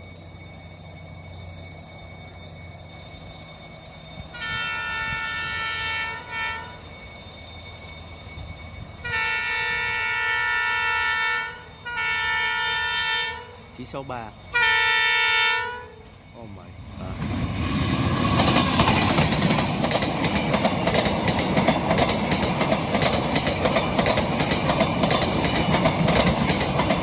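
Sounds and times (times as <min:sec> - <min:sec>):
locomotive air horn blasts: 0:04.4 - 0:06.8, 0:09.0 - 0:13.6, 0:14.5 - 0:16.0.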